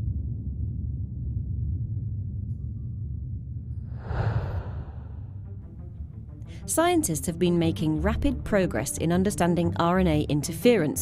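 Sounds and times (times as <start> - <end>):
low ambient drone: 0.0 - 5.6.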